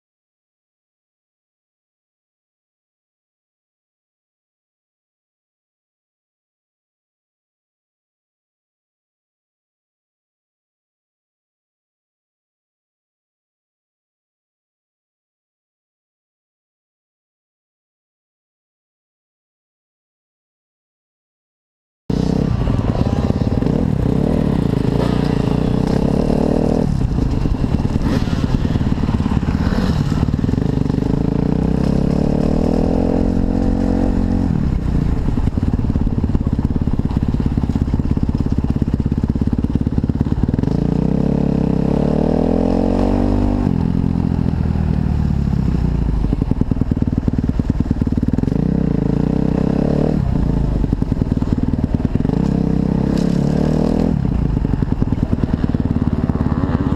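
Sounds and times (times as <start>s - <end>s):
motocross engine revving: 22.1s - 56.9s.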